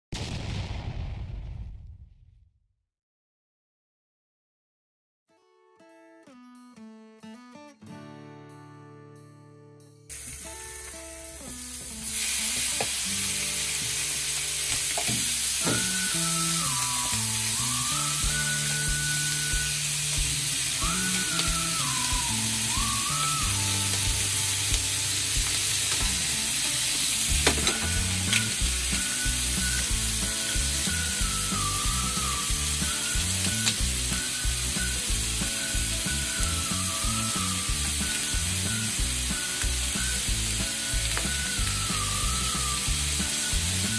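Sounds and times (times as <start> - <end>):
chicken skin sizzling in pan: 10.1 - 43.9.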